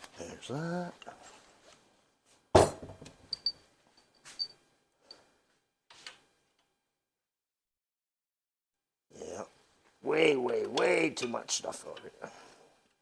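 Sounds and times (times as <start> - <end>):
metallic clinks and taps: 3.0 - 5.2.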